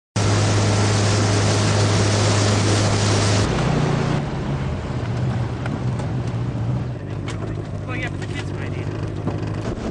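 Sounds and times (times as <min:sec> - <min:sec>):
water rushing: 0:00.2 - 0:04.2
heavy wind: 0:00.2 - 0:09.9
motorboat engine running: 0:00.2 - 0:09.9.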